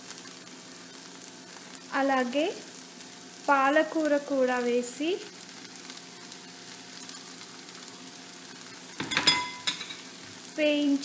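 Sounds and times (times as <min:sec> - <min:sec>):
faint sizzling in a pan: 0:00.0 - 0:11.0
metal spoon clinking on pan: 0:09.0 - 0:10.1.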